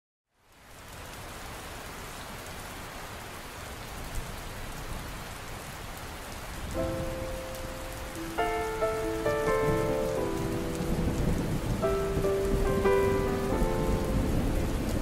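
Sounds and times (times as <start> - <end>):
steady rain hiss: 0.3 - 15.0
soft acoustic music: 6.8 - 14.6.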